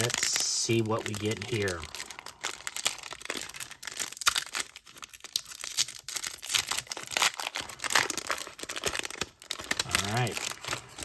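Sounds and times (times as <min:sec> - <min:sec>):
foil wrapper tearing and crinkling: 0:00.0 - 0:11.0.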